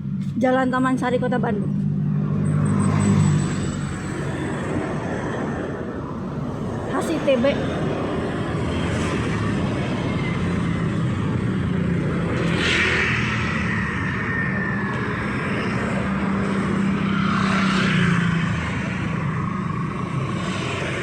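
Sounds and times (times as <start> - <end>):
traffic engines running: 0.0 - 21.0.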